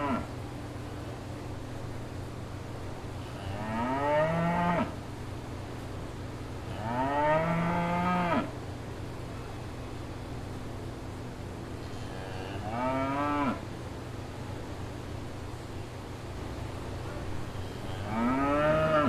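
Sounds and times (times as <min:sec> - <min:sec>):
steady low hum: 0:00.0 - 0:19.0
cow mooing: 0:03.4 - 0:04.9, 0:06.7 - 0:08.5, 0:12.2 - 0:13.6, 0:17.7 - 0:19.0.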